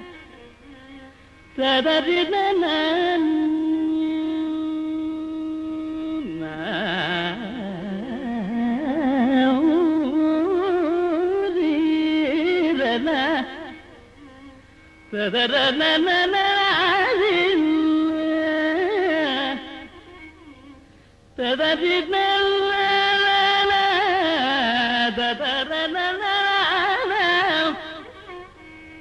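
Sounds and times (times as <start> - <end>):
south indian classical melody: 0.0 - 29.0.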